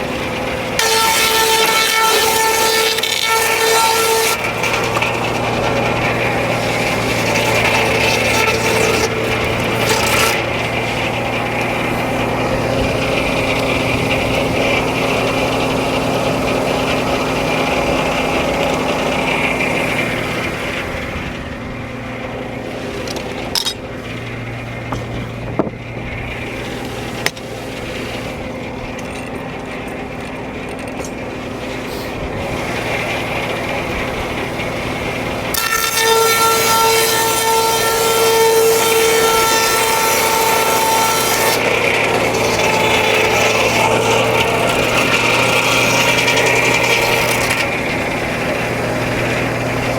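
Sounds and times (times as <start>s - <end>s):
circular saw cutting log: 0.0s - 49.9s
high steady whine: 4.3s - 35.6s.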